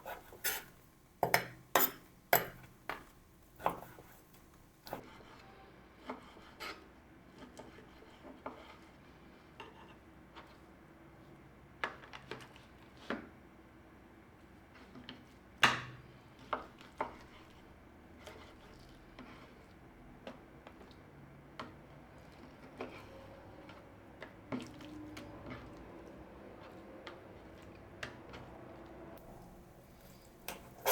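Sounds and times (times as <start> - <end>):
dishes and utensils clinking: 0.1 - 4.1, 29.2 - 30.9.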